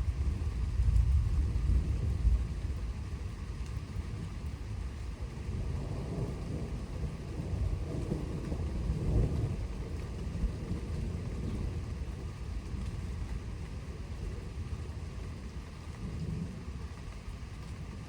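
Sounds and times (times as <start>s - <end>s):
rolling thunder: 0.0s - 3.3s, 5.2s - 15.3s
steady rain: 0.0s - 18.0s.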